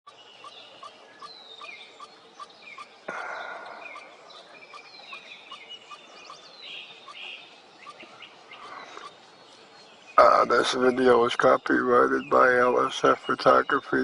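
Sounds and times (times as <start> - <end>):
bird calls with falling whistles: 0.1 - 9.2
woodpecker nestlings calling: 0.1 - 14.0.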